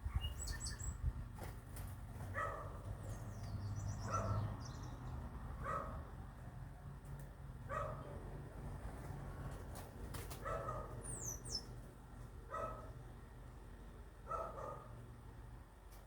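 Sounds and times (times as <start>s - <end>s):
small bird chirping: 0.0s - 1.1s, 11.0s - 11.7s
dog barking: 2.3s - 2.8s, 4.0s - 4.5s, 5.6s - 6.0s, 7.7s - 8.1s, 10.4s - 11.0s, 12.5s - 12.9s, 14.3s - 14.9s.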